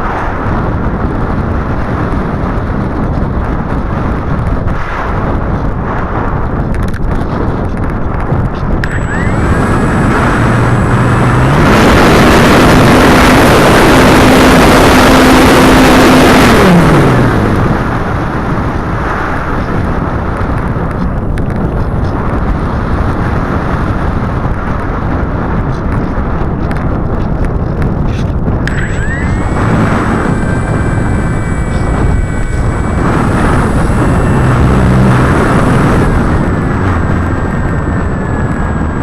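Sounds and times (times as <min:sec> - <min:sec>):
wind buffeting microphone: 0:00.0 - 0:39.0
electric motor humming: 0:08.6 - 0:18.9, 0:28.6 - 0:39.0.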